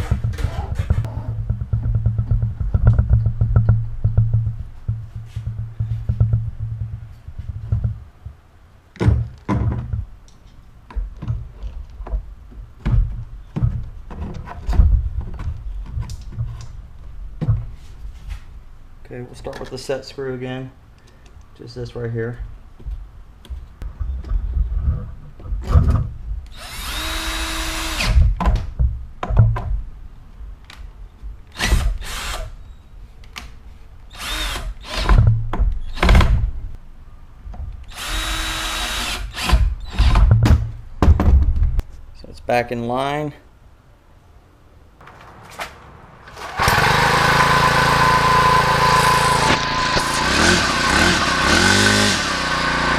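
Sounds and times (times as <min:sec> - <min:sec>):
handling knocks and thunks: 0:00.0 - 0:10.2, 0:10.8 - 0:17.8, 0:22.8 - 0:26.4, 0:28.2 - 0:29.9, 0:39.5 - 0:41.8
power drill whirring: 0:26.5 - 0:28.2, 0:31.6 - 0:32.6, 0:34.1 - 0:35.1, 0:37.9 - 0:40.2, 0:46.4 - 0:52.9.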